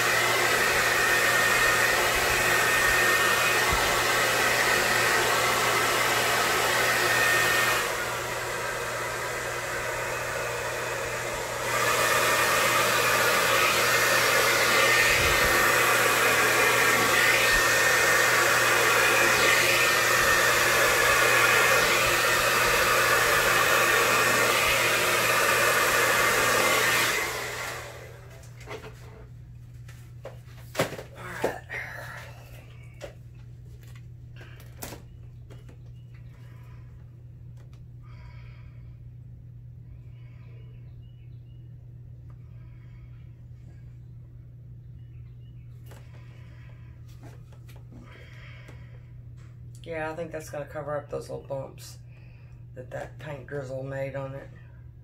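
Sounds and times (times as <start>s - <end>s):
hair dryer blowing: 0.0s - 29.5s, 30.2s - 38.4s, 45.8s - 52.1s.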